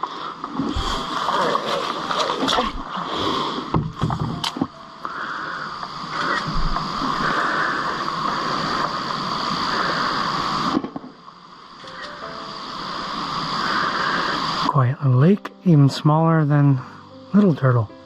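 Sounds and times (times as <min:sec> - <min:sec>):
water splashing around a canoe: 0:00.0 - 0:04.4.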